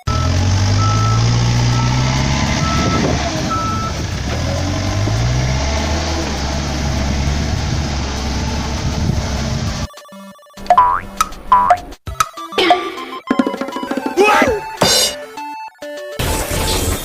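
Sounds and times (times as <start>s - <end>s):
diesel engine under load: 0.0s - 9.9s
back-up alarm beeping: 11.5s - 14.0s.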